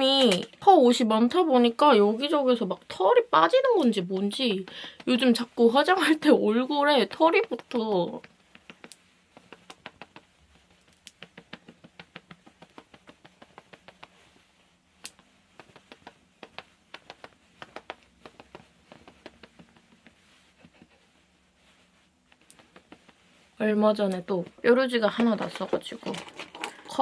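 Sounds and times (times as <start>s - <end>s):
light quick tapping of makeup: 7.4s - 14.2s, 15.1s - 20.9s.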